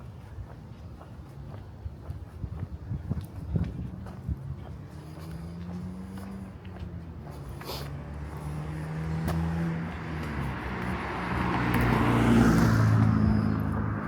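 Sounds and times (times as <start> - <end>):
car passing by: 3.9 - 14.0.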